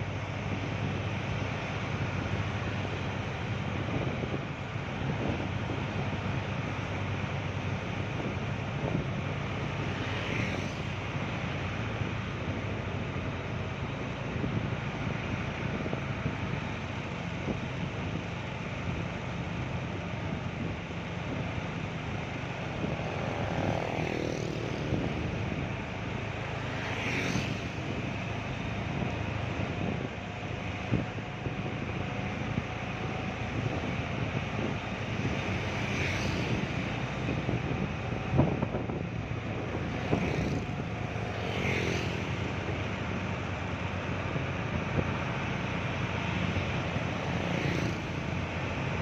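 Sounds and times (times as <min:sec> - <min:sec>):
truck engine running: 0:00.0 - 0:09.9, 0:10.8 - 0:26.8, 0:27.7 - 0:35.8, 0:36.5 - 0:41.4.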